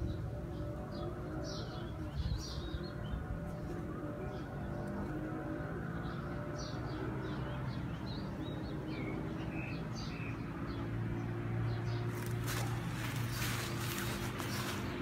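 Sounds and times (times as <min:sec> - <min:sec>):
small birds chirping: 0:00.0 - 0:15.0
rustling noise: 0:12.1 - 0:15.0.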